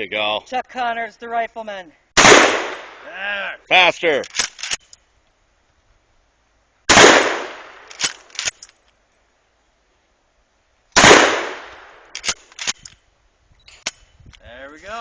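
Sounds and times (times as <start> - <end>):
shotgun blasts with echo: 2.2 - 3.1, 6.9 - 8.0, 11.0 - 12.4.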